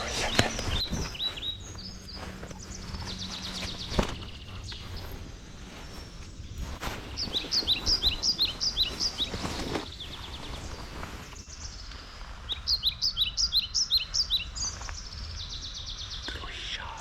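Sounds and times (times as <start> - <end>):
low rustle: 0.0 - 12.5
songbird chirping: 0.0 - 17.0.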